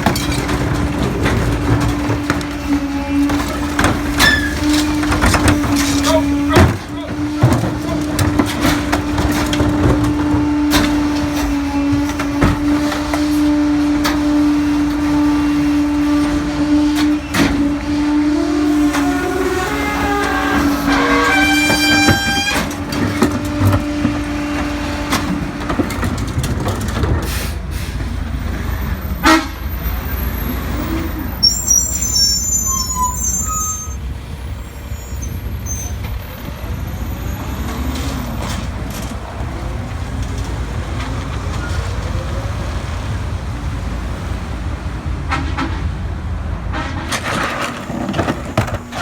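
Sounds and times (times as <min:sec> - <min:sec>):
garbage truck diesel engine running: 0:00.0 - 0:49.0
high squeals: 0:00.1 - 0:12.6, 0:18.4 - 0:23.2, 0:29.8 - 0:37.9.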